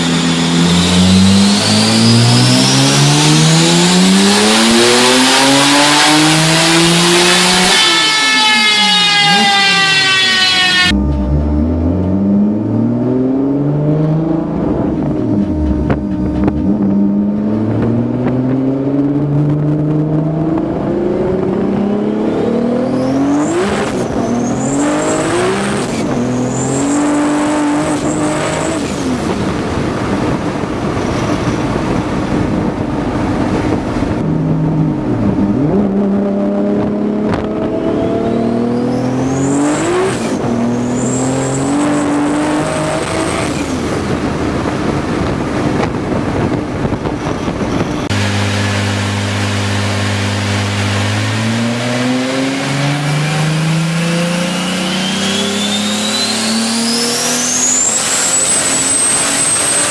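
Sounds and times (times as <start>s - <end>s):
engine accelerating through gears: 0.0s - 59.9s
turbo whistle: 7.4s - 11.8s, 54.1s - 59.9s.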